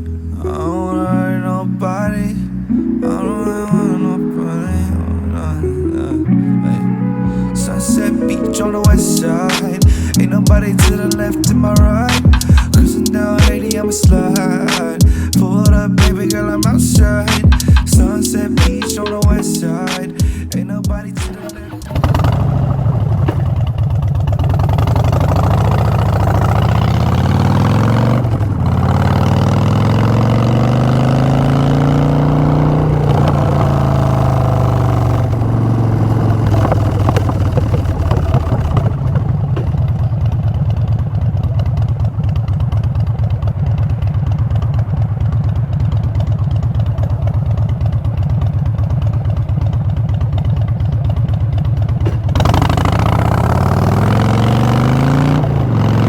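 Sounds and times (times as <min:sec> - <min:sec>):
motorcycle engine revving: 0:21.4 - 0:56.0.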